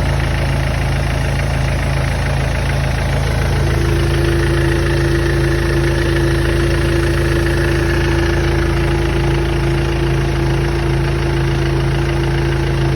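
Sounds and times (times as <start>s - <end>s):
diesel engine idling: 0.0s - 12.9s
steady tone over engine: 0.0s - 12.9s.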